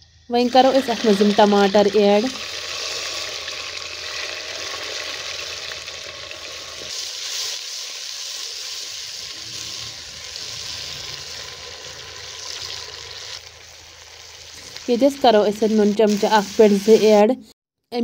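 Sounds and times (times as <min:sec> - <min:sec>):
tomatoes sizzling in hot oil: 0:00.1 - 0:17.4.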